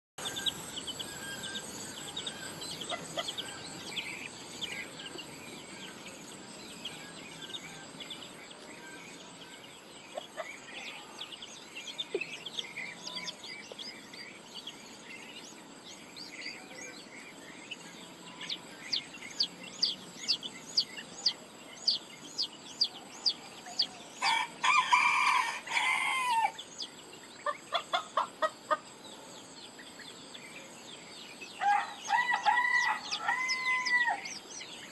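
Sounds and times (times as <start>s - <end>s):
rooster crowing: 24.2s - 26.6s, 31.6s - 34.4s.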